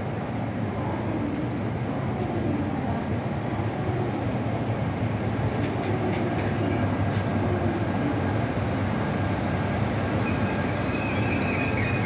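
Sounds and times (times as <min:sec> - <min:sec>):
high wheel squeal: 0:00.2 - 0:06.9, 0:09.9 - 0:12.0.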